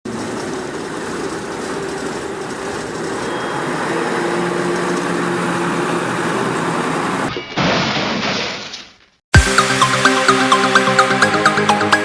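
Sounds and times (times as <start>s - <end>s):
rushing machine noise: 0.1s - 7.3s.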